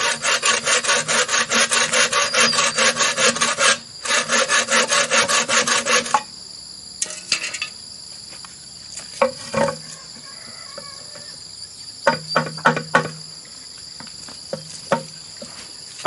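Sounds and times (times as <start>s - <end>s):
hand saw cutting bamboo: 0.0s - 6.3s
high insect drone: 0.0s - 16.0s
bamboo knocking and clattering: 9.0s - 11.4s, 12.0s - 13.3s, 14.0s - 16.0s.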